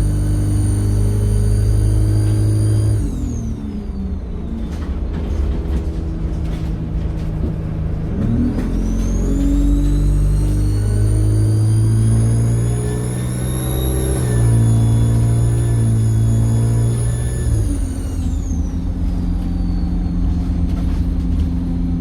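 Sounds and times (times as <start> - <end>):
bus engine: 0.0 - 22.0.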